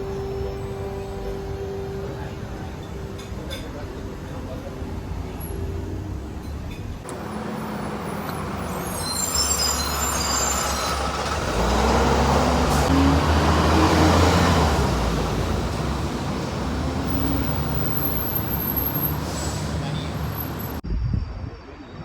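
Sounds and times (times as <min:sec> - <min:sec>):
bus passing: 0:00.0 - 0:20.8
street traffic rumbling: 0:00.0 - 0:22.0
brief high squeal: 0:08.7 - 0:11.2.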